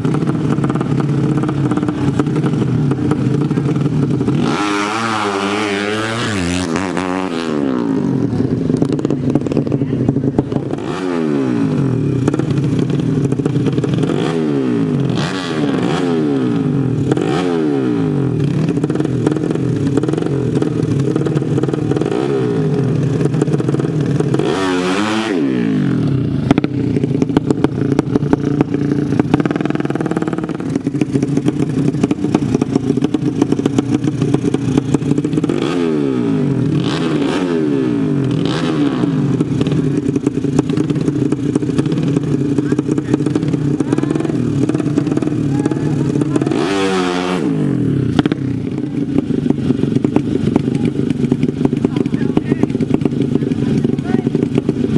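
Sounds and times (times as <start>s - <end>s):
motorcycle engines revving: 0.0s - 54.9s.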